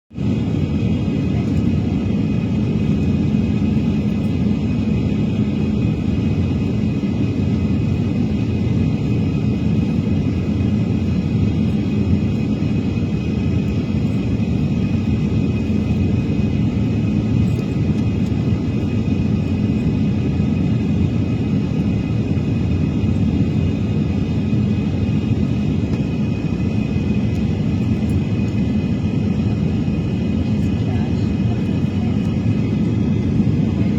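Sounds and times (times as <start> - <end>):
jet engine rumble: 0.1 - 33.9.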